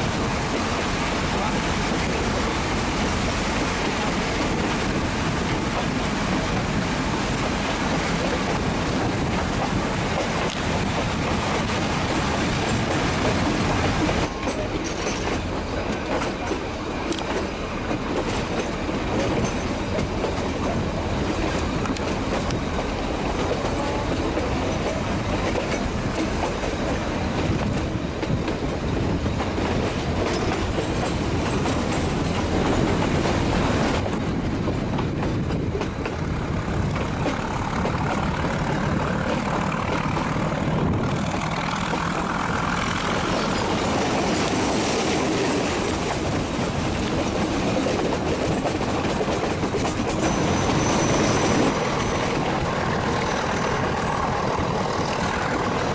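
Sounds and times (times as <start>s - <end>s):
train rumbling: 0.0s - 55.9s
wheels clacking over track: 36.8s - 55.9s.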